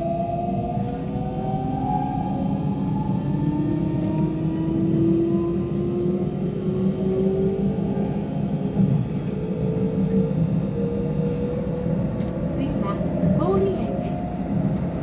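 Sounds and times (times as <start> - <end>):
train running rumble: 0.0 - 15.0.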